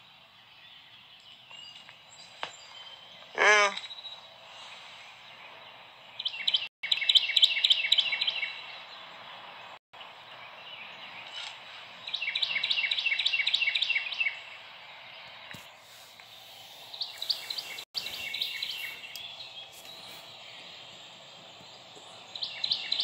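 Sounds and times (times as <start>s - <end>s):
songbird singing rapid high notes: 16.2s - 23.0s.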